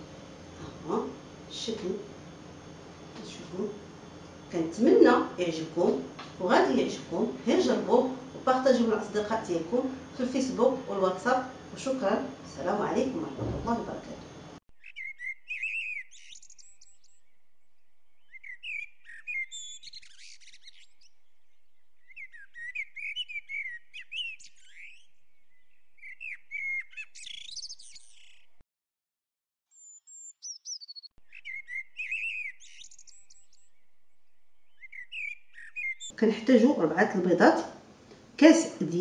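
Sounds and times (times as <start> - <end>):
birds chirping and twittering: 14.7 - 28.6, 29.7 - 36.2.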